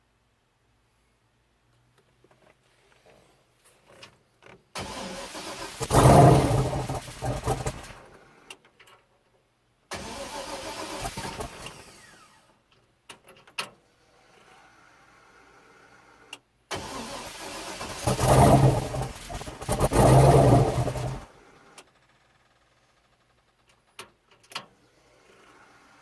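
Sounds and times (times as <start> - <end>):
engine cranking and sputtering: 4.8 - 8.1, 10.0 - 12.2, 16.7 - 21.4.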